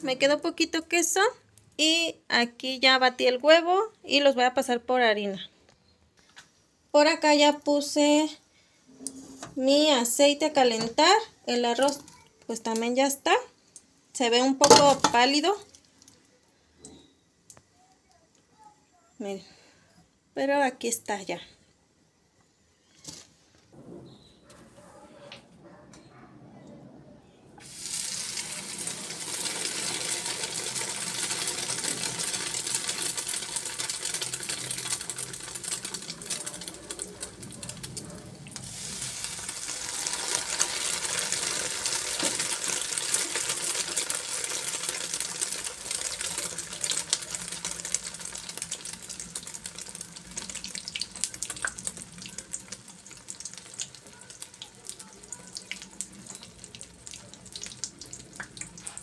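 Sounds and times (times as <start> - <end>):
chiles frying in hot oil: 0.0 - 3.4, 7.0 - 8.4, 9.1 - 17.7, 27.6 - 59.0.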